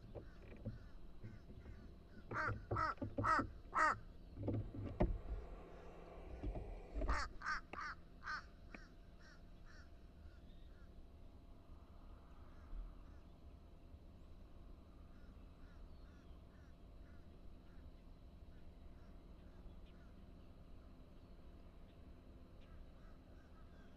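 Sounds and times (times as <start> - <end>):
crow cawing: 2.3 - 4.0, 7.1 - 9.9.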